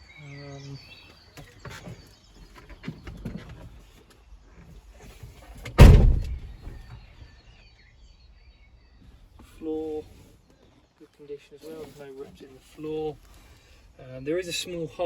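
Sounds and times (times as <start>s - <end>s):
loud thump: 5.8s - 6.9s.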